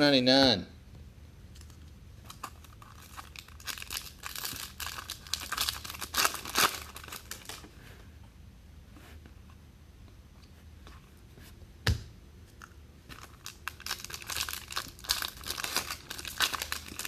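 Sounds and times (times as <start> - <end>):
foil wrapper crinkling and tearing: 2.3 - 7.6, 13.2 - 17.0.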